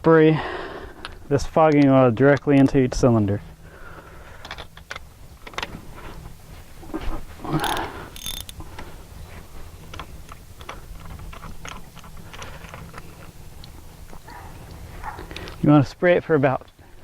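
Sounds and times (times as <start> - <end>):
clicks and rattles of hand tools: 7.5 - 8.8.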